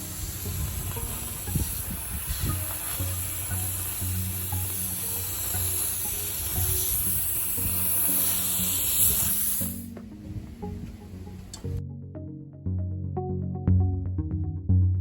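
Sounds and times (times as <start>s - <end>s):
high air hiss: 0.0s - 11.7s
background music with bass line: 0.0s - 15.0s.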